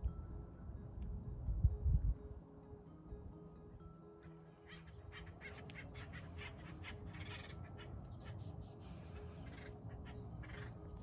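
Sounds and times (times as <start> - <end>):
woodpeckers harsh calls: 4.6 - 11.0.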